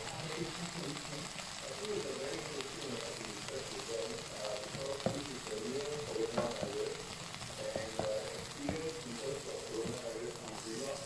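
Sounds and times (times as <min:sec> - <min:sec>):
vegetables and egg sizzling in pan: 0:00.0 - 0:11.0
spatula knocking and scraping pan: 0:06.3 - 0:06.8, 0:07.8 - 0:08.9, 0:09.8 - 0:10.0.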